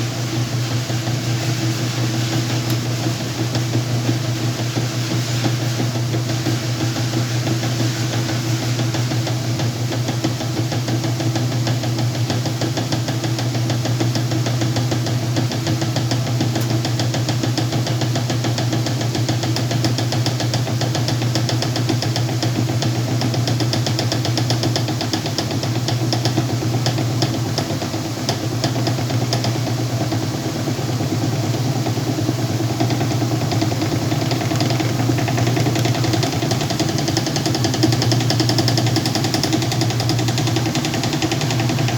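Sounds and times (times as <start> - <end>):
washing machine motor hum: 0.0 - 41.9
fast continuous rattle: 32.9 - 41.9.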